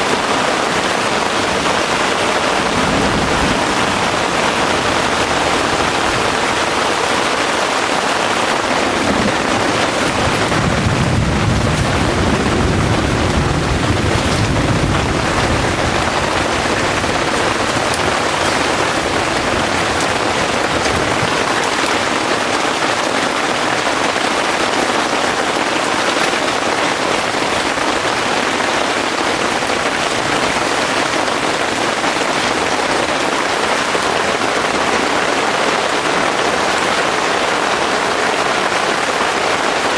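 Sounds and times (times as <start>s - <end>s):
distant thunder rumble: 0.0s - 22.6s
heavy rain falling: 0.0s - 39.9s.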